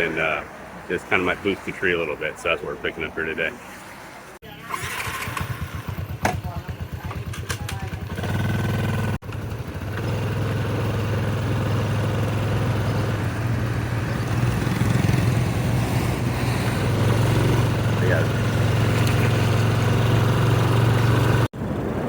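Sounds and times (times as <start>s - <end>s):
vehicle engine running: 4.5s - 22.0s.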